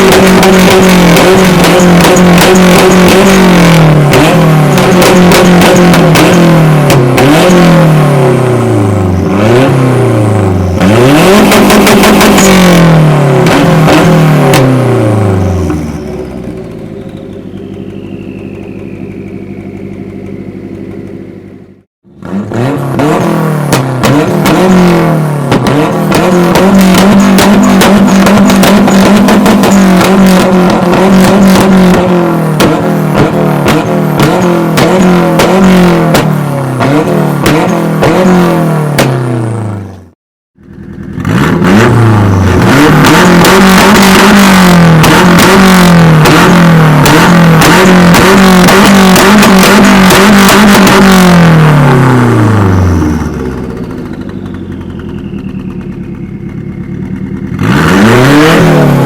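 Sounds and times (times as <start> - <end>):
engine idling: 0.0 - 22.3, 24.6 - 59.0
exhaust crackling: 0.0 - 40.0, 40.6 - 59.0
car engine revving: 0.0 - 59.0
falling whistle: 17.0 - 20.1, 54.2 - 56.9.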